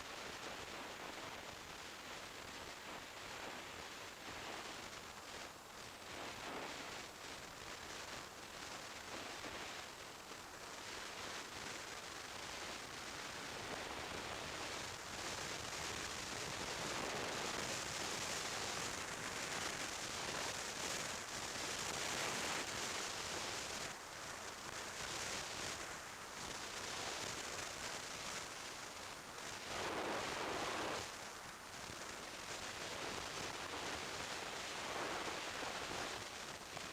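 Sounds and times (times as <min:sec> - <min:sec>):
wind noise on microphone: 0:00.0 - 0:36.9.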